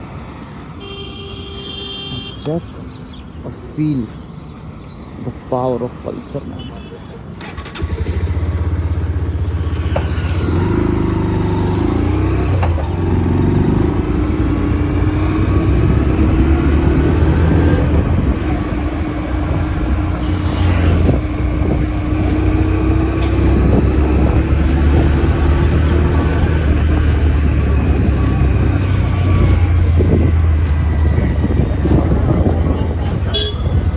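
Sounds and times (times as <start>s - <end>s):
motorcycle engine running: 7.5s - 33.9s
wind rumble on microphone: 13.6s - 33.9s.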